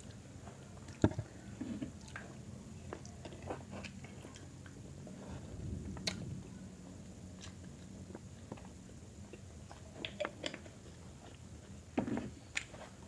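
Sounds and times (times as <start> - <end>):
person chewing: 7.3 - 11.4.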